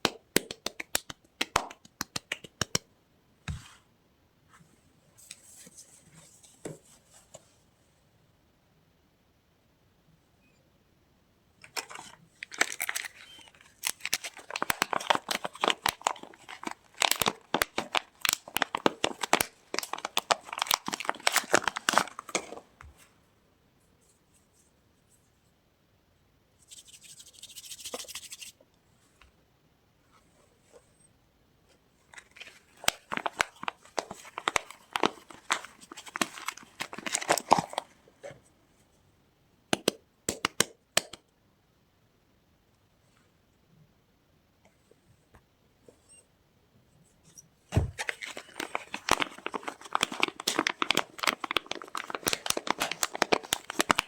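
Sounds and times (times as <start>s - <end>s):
packaging crinkling and tearing: 11.7s - 22.6s, 32.1s - 37.9s, 47.8s - 54.0s.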